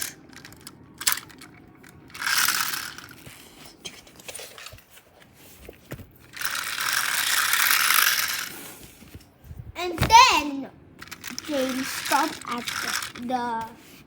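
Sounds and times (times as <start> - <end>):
toy train geared whirr: 0.0 - 3.7, 6.3 - 8.9, 11.0 - 14.0.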